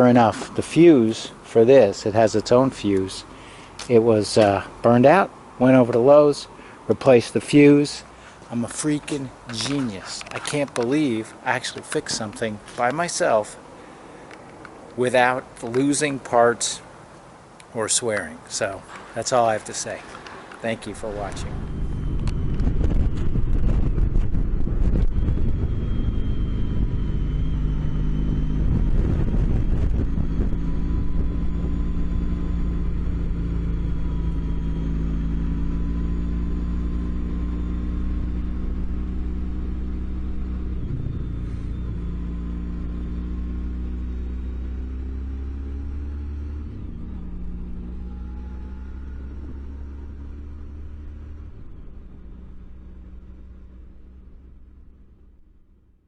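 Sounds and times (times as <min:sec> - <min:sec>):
vehicle engine running: 0:19.9 - 0:56.0.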